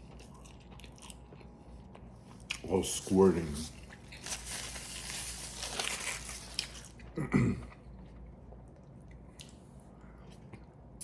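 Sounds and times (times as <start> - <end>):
close-miked chewing: 0.0 - 2.7.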